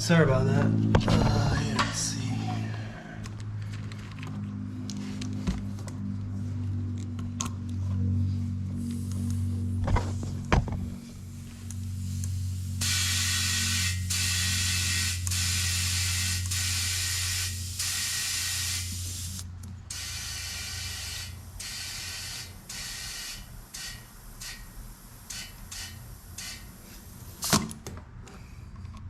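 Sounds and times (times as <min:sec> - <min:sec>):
steady low hum: 0:00.0 - 0:27.4
compressed air hissing from nozzle: 0:11.2 - 0:27.5.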